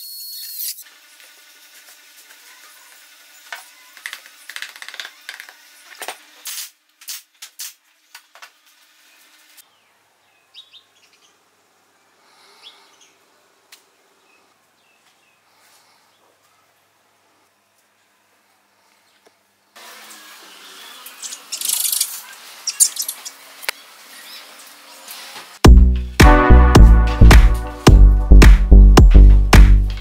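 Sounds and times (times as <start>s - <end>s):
power drill running: 0.8s - 6.4s, 19.8s - 21.5s
small birds chirping: 9.0s - 16.8s, 20.6s - 24.9s.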